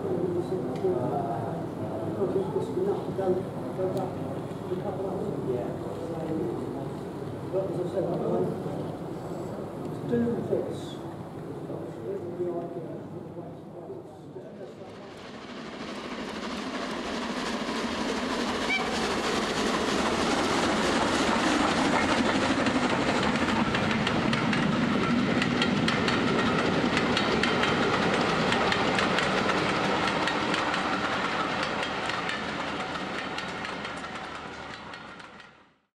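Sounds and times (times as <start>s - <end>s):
train wheels clickety-clack: 14.8s - 35.8s.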